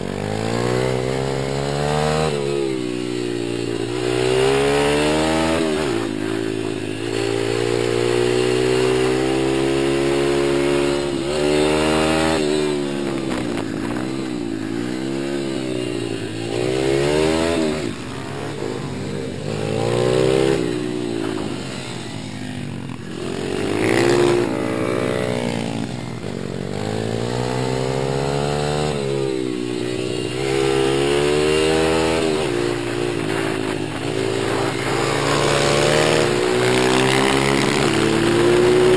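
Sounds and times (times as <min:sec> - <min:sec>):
small motorcycle engines revving: 0:00.0 - 0:38.9.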